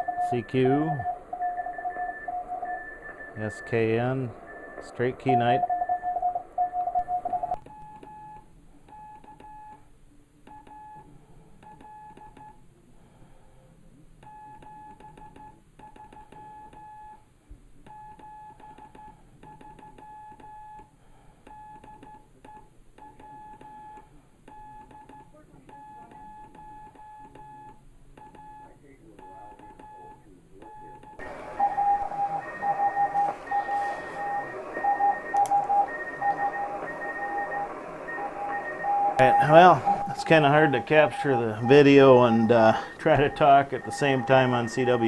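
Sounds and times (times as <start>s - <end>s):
morse code tone: 0.0s - 7.6s, 31.2s - 45.0s
faint receiver hiss: 31.2s - 45.0s.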